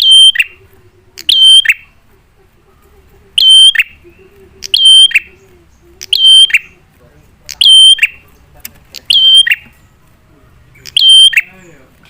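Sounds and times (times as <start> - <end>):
bird sharp call notes: 9.1 - 9.7.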